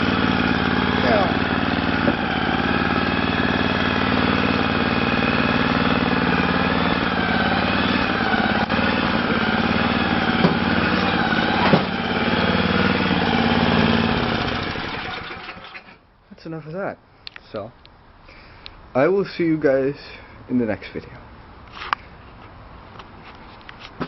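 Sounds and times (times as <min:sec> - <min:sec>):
snowblower engine running: 0:00.0 - 0:16.0.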